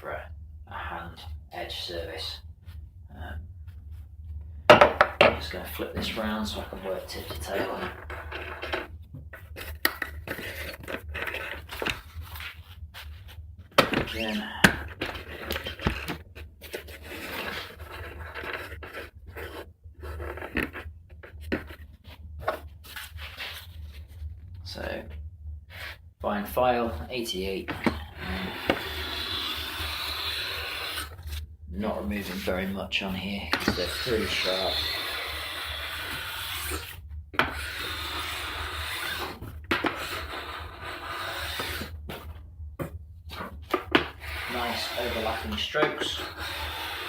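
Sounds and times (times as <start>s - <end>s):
metal file rasping on steel edge: 27.8s - 31.2s, 33.6s - 41.9s, 44.2s - 47.0s.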